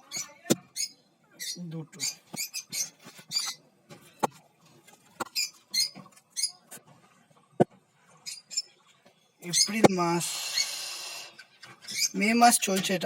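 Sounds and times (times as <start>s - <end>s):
lovebirds chirping: 0.0s - 3.6s, 5.2s - 6.7s, 8.2s - 13.0s.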